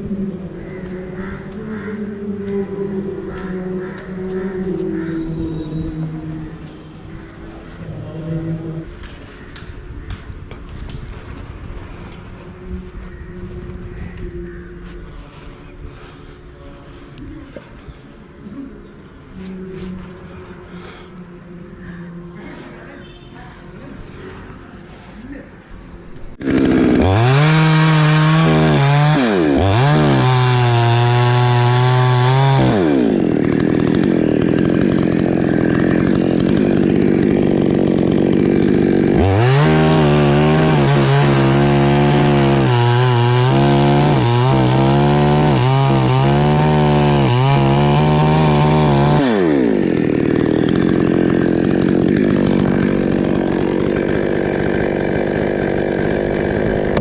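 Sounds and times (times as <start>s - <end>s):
chainsaw cutting trunk: 26.4s - 57.0s.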